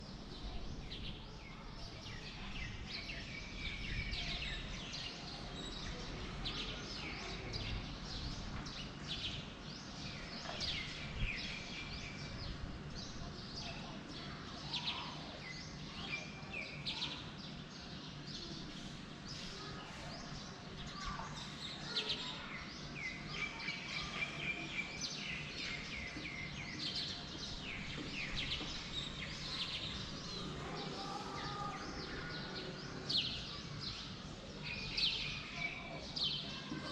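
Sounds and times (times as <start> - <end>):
birds chirping and singing: 14.6 - 36.9.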